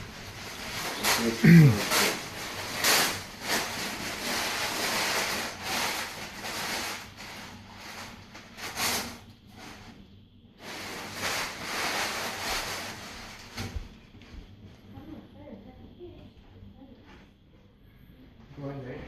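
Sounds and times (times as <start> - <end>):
wood fire rushing hiss: 0.0 - 9.9, 10.6 - 13.6.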